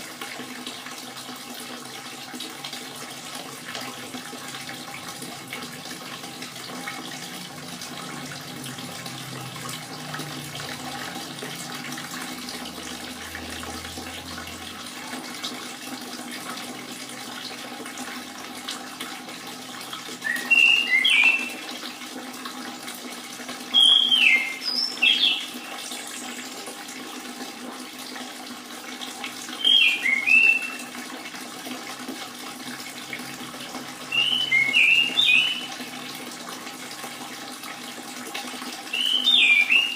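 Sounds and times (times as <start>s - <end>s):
water trickling: 0.0s - 39.9s
thrush whistled song: 20.2s - 21.7s, 23.8s - 26.4s, 29.6s - 30.8s, 34.1s - 35.8s, 38.9s - 39.9s.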